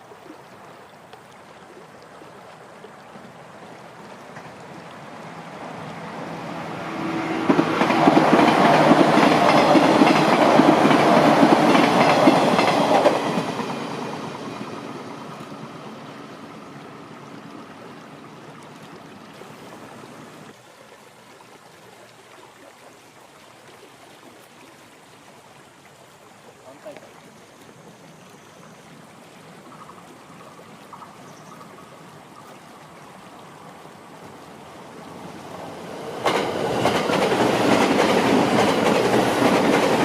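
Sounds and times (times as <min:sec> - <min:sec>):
train passing: 0:04.2 - 0:17.7, 0:33.8 - 0:40.0.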